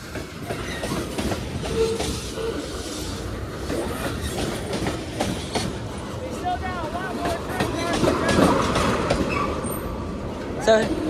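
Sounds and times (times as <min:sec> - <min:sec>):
train wheels clacking over rail joints: 0:00.0 - 0:10.5
train wheels squealing: 0:00.4 - 0:05.6, 0:09.1 - 0:10.0.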